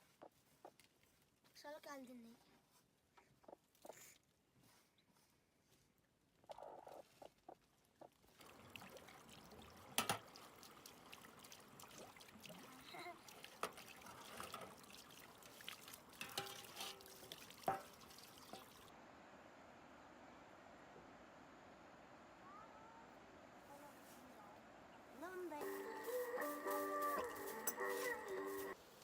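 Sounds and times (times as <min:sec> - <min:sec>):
water trickling and pouring: 0:08.2 - 0:18.9
steady hiss: 0:25.5 - 0:29.0.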